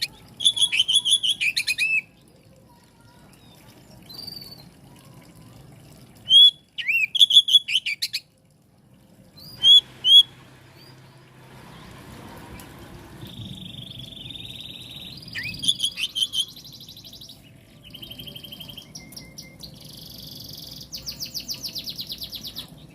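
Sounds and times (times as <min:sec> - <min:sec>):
bird singing whistles and trills: 0:00.0 - 0:02.1, 0:06.2 - 0:08.2, 0:09.4 - 0:11.1, 0:13.2 - 0:22.9.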